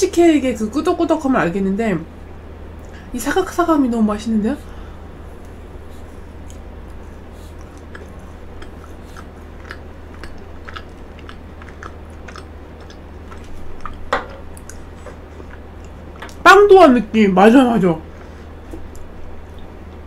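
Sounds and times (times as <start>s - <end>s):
person chewing frozen cake: 5.3s - 16.4s, 18.4s - 20.0s.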